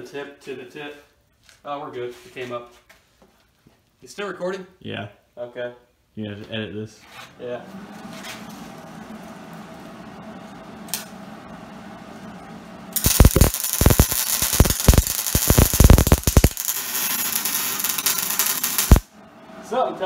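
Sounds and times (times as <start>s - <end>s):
welder click: 13.0s - 19.0s
welder arc crackling: 13.0s - 19.1s.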